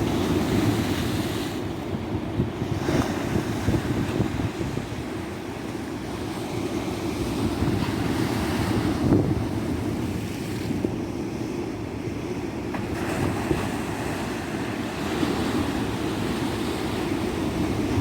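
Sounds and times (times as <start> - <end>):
wind rumble on microphone: 0.0 - 5.7, 6.3 - 11.2, 12.8 - 18.0
ocean surf washing onto beach: 0.0 - 18.0.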